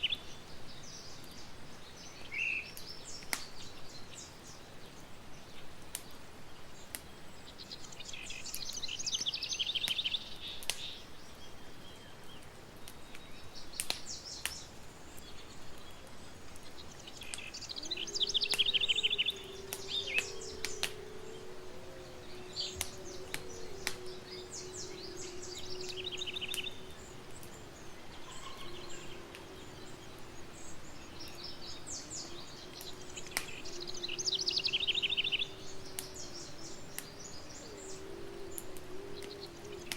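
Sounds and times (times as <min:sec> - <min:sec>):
songbirds trilling: 0:00.0 - 0:39.9
campfire crackling and popping: 0:00.2 - 0:04.0, 0:05.6 - 0:39.9.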